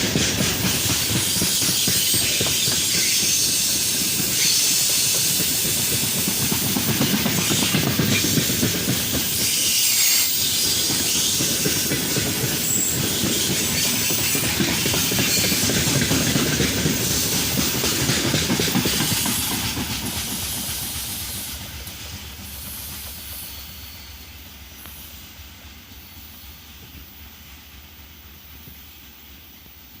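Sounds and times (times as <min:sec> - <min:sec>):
train wheels clattering over rail joints: 0:00.0 - 0:23.9
hiss: 0:00.0 - 0:30.0
wheel squeal: 0:01.1 - 0:06.0, 0:09.2 - 0:11.8, 0:12.6 - 0:16.0.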